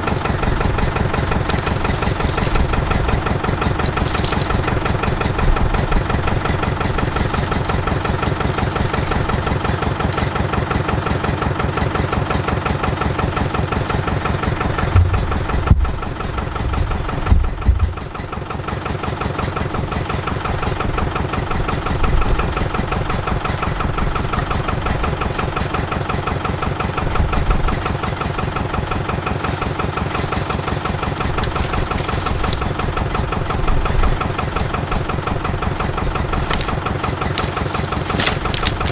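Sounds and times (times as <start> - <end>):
engine idling: 0.0 - 38.9
heavy low thumps: 14.8 - 18.3.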